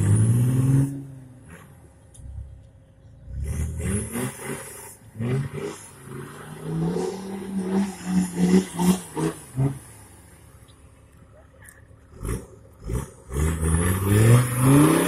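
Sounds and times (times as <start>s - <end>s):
off-road engine revving hard: 0.0s - 1.8s, 3.3s - 10.0s, 12.1s - 15.0s.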